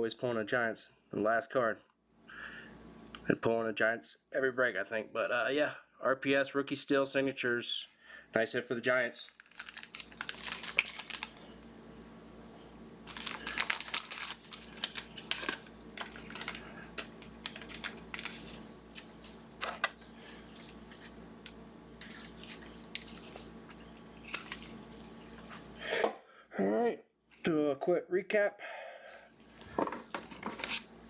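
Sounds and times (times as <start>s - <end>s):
cards and wrappers rustling: 9.2s - 11.6s, 13.1s - 21.2s, 22.0s - 25.8s, 29.4s - 30.9s.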